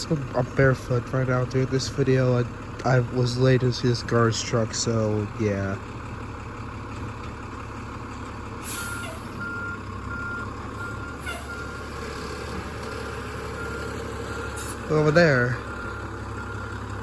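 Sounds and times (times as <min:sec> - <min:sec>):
diesel engine running: 0:00.0 - 0:17.0
reversing alarm beeping: 0:08.8 - 0:11.9, 0:12.9 - 0:16.8.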